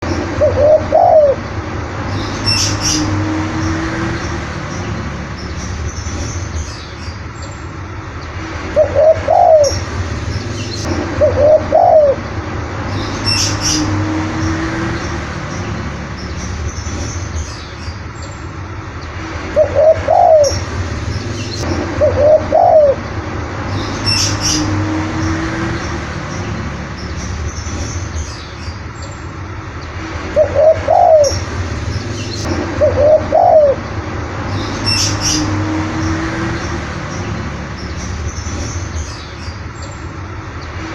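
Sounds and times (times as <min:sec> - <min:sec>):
dove cooing: 0:00.3 - 0:01.5, 0:08.8 - 0:09.8, 0:11.2 - 0:12.2, 0:19.6 - 0:20.6, 0:21.9 - 0:23.0, 0:30.4 - 0:31.4, 0:32.8 - 0:33.8
high bird chirps: 0:13.0 - 0:14.0, 0:23.8 - 0:24.8, 0:34.5 - 0:40.0.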